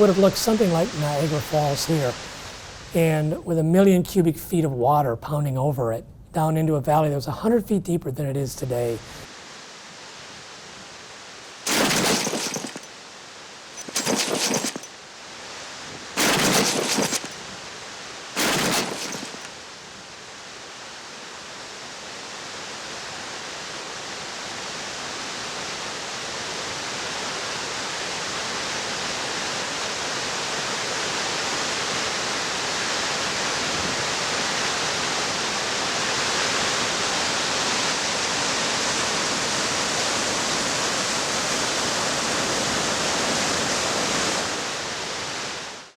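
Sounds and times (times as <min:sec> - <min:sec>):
rushing water bursts: 0:00.0 - 0:03.4, 0:11.3 - 0:13.1, 0:13.8 - 0:19.8.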